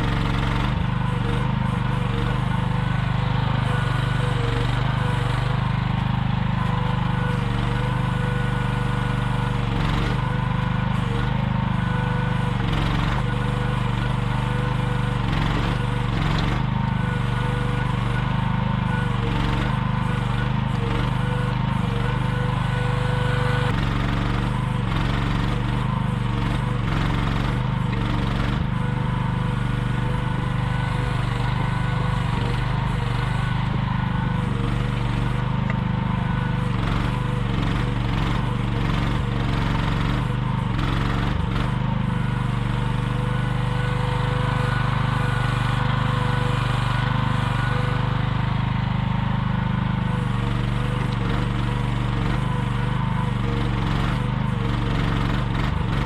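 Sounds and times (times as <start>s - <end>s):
mini excavator engine running: 0.0s - 56.0s.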